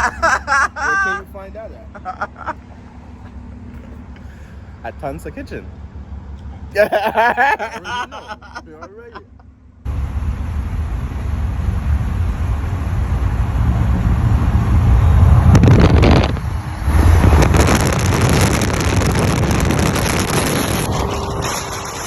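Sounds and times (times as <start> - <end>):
car engine and exhaust rumble: 0.0 - 22.0
wind buffeting microphone: 9.9 - 22.0.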